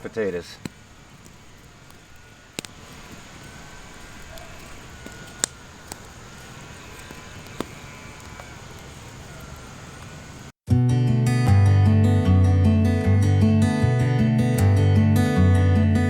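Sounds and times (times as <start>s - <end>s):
steady low hiss: 0.0s - 10.5s
sharp clicks: 0.6s - 8.9s.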